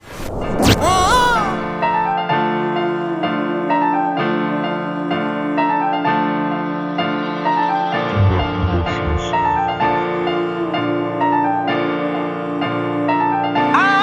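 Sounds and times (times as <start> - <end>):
keyboard melody: 8.0 - 11.2
sustained low note: 8.1 - 10.5.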